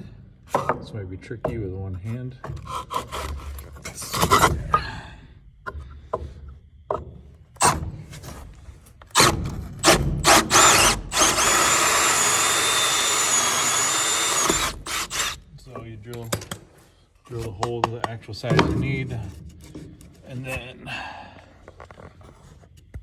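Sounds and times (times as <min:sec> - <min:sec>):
hole saw cutting plywood: 0:02.6 - 0:04.8, 0:09.1 - 0:15.4
power drill bursts: 0:09.1 - 0:15.5
handling knocks and clicks: 0:15.8 - 0:20.6.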